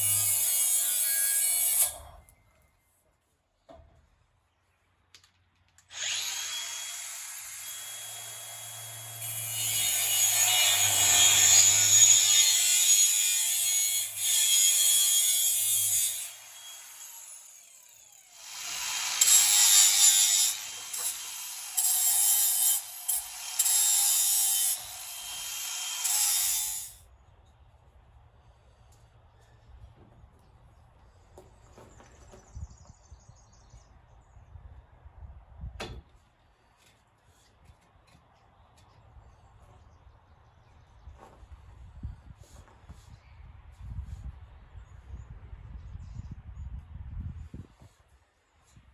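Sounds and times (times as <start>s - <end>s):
power tool whining: 5.9s - 9.4s.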